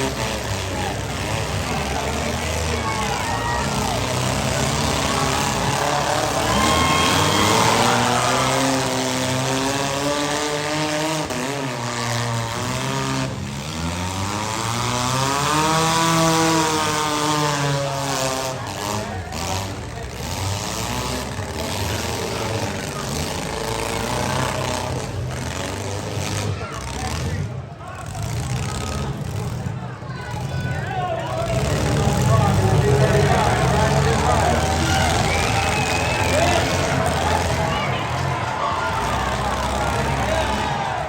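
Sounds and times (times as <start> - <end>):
car engines revving: 0.0 - 41.0.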